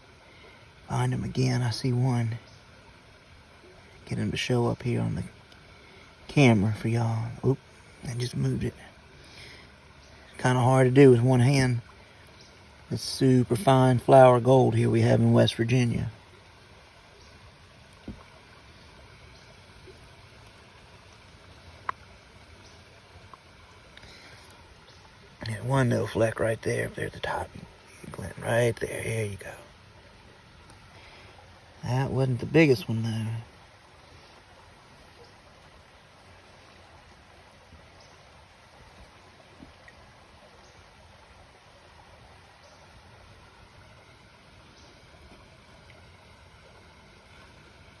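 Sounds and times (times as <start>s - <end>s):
creek water flowing: 0.0s - 48.0s
small ticks: 21.8s - 24.6s.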